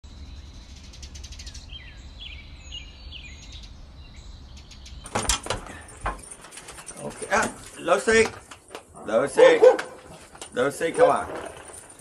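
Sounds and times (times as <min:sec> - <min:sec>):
outdoor background noise: 0:00.0 - 0:12.0
small birds chirping: 0:00.1 - 0:11.3
clatter of sharp knocks: 0:05.0 - 0:08.9.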